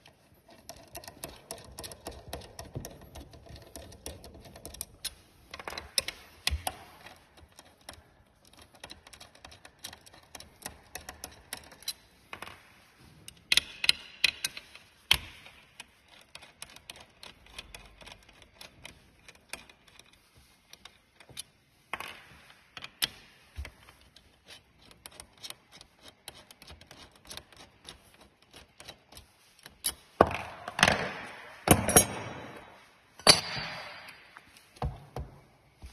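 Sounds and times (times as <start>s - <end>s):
hand tools clicking on metal parts: 0.0s - 12.5s, 13.3s - 21.6s, 22.8s - 30.3s.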